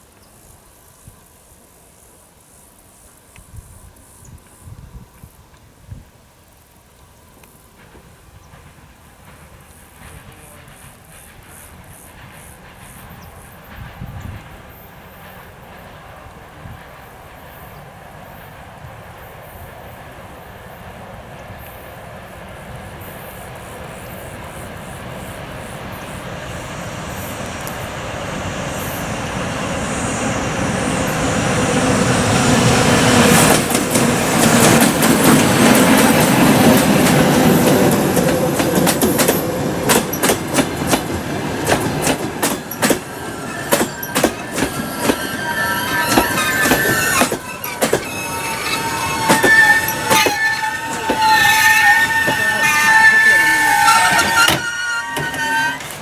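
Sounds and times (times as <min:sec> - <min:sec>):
diesel locomotive passing: 0:07.0 - 0:56.0
brakes squealing: 0:24.0 - 0:56.0
coaches clattering over rail joints: 0:31.8 - 0:56.0.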